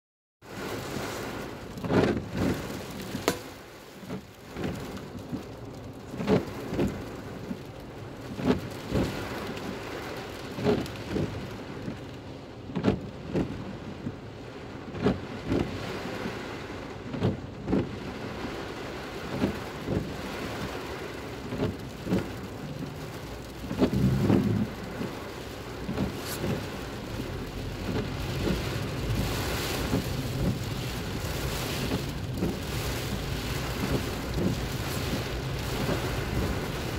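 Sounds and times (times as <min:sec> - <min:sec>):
heavy rain on car roof: 0:00.4 - 0:36.9
sharp knocks: 0:03.2 - 0:03.5.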